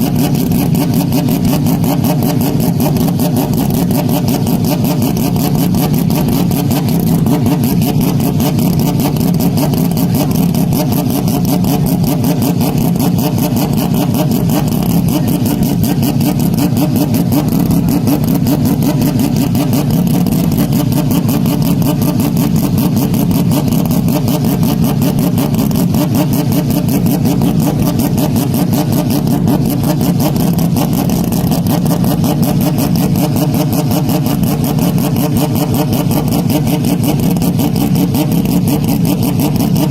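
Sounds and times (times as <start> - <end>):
distorted car engine running: 0.0 - 39.9.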